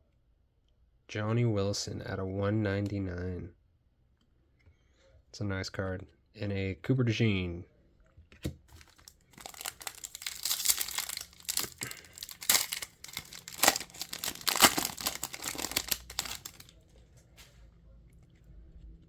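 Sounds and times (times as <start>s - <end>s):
wrapper tearing and crinkling: 8.7s - 16.7s.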